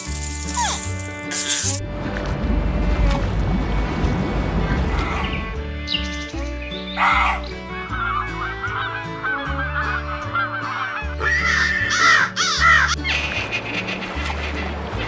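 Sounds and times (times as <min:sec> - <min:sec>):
background music: 0:00.0 - 0:15.0
animal calls: 0:07.0 - 0:14.7.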